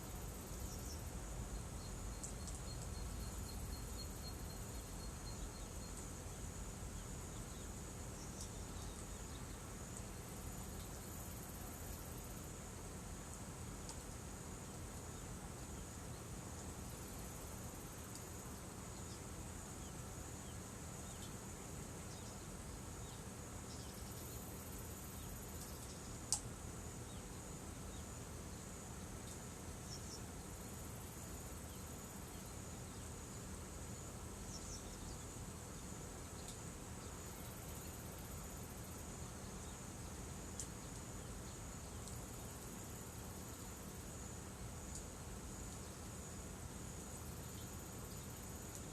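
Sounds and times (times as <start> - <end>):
insects trilling: 0.0 - 48.9
faint click: 13.8 - 14.0, 25.6 - 26.5.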